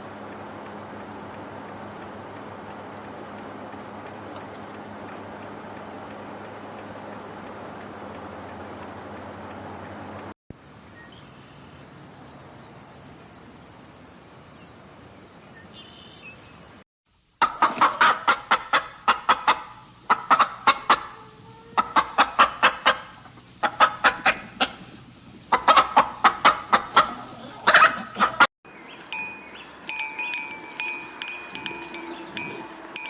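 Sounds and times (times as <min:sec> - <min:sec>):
chicken clucking: 0:17.4 - 0:28.5.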